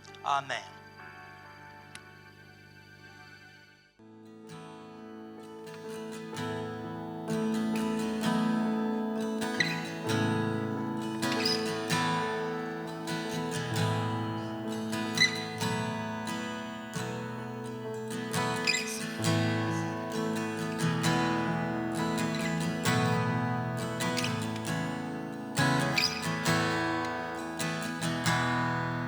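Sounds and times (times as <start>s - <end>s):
acoustic guitar strumming chords: 4.0s - 29.0s.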